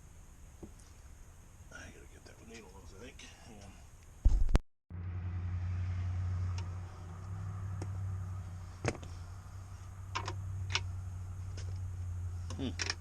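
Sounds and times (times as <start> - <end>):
low hum: 4.0 - 13.0
tools and parts clicking: 10.1 - 10.8, 12.8 - 13.0.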